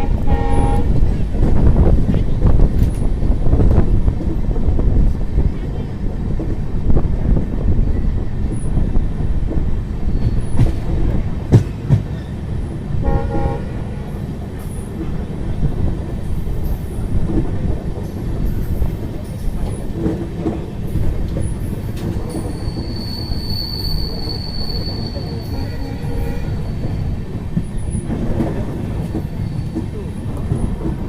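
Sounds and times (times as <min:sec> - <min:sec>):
train wheels rumbling on track: 0:00.0 - 0:31.0
high thin wheel squeal: 0:22.4 - 0:27.1.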